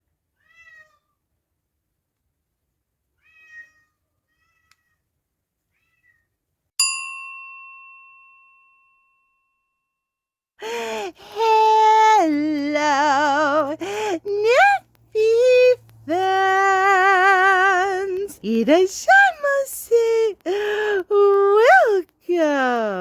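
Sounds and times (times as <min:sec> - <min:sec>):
cat meowing: 0:00.4 - 0:01.2, 0:03.2 - 0:05.0, 0:05.7 - 0:06.3
bell-like ding: 0:06.8 - 0:10.0.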